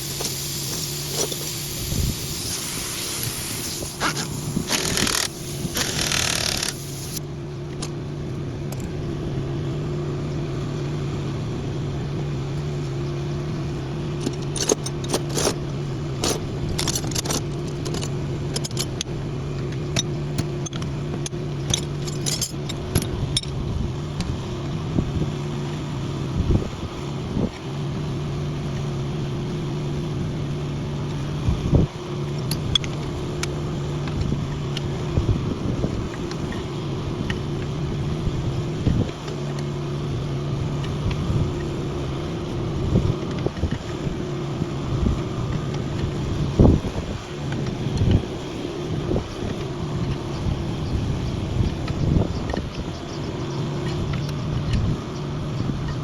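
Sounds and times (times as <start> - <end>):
engine idling: 0.0 - 56.0
metallic clicks and clanks: 14.2 - 15.6, 16.2 - 23.6.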